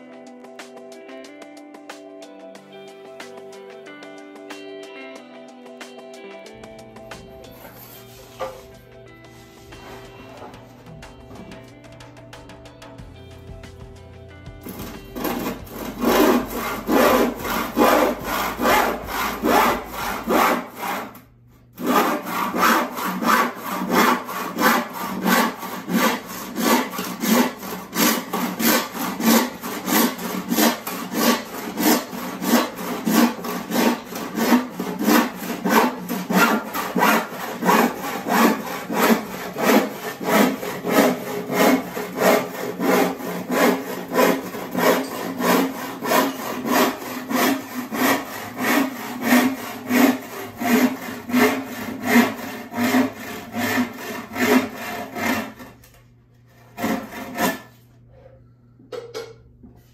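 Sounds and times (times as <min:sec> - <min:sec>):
handsaw cutting wood: 0:14.6 - 0:55.8, 0:56.5 - 0:57.8.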